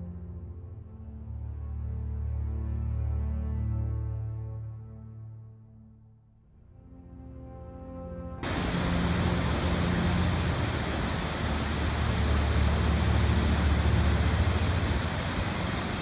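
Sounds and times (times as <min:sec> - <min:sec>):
soft music: 0:06.8 - 0:16.0
loud rushing noise with low rumble: 0:08.4 - 0:16.0.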